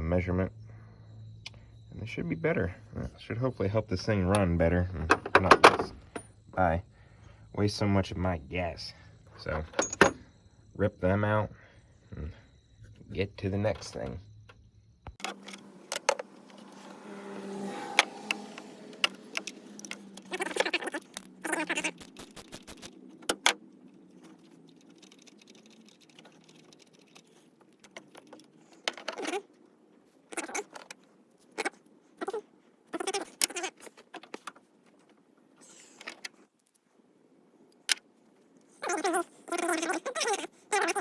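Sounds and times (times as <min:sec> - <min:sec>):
sharp clicks: 0:18.3 - 0:23.6.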